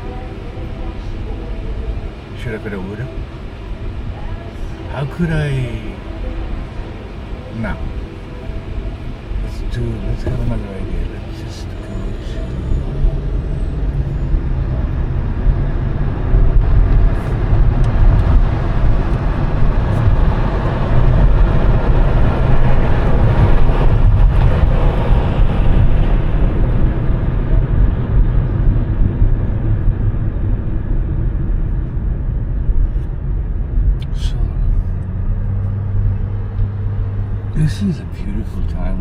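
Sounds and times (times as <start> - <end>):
road traffic rumble: 0.0 - 39.0
vehicle passing: 34.2 - 39.0.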